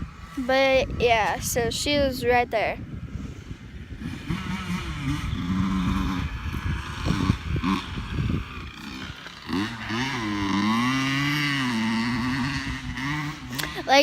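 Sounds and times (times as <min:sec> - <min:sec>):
dirt bike engine revving: 0:03.7 - 0:14.0.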